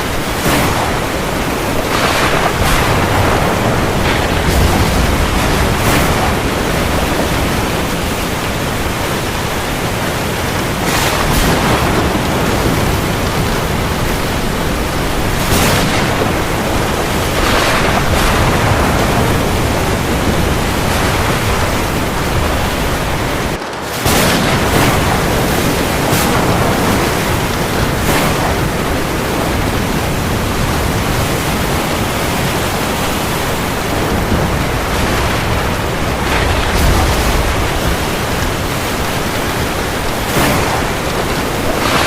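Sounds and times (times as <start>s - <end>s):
heavy rain falling: 0.0s - 42.0s.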